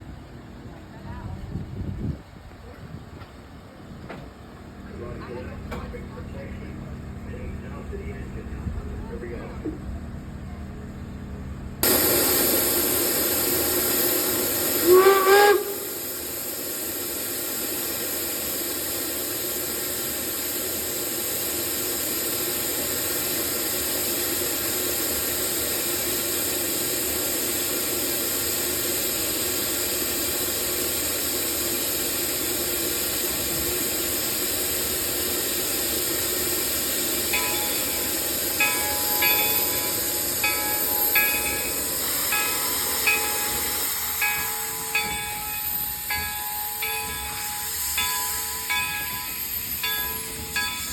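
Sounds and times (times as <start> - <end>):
steam locomotive hissing steam: 11.8 - 50.9
rising whistle blast: 14.8 - 16.0.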